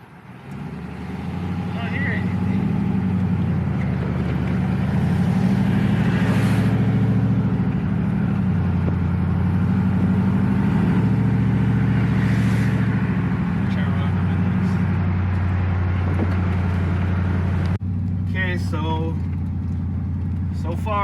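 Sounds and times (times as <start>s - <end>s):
truck engine and exhaust droning: 0.0s - 21.0s.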